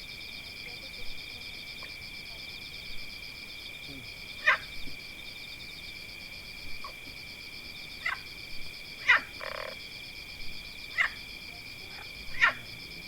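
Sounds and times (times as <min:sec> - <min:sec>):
insect chorus trilling: 0:00.0 - 0:13.0.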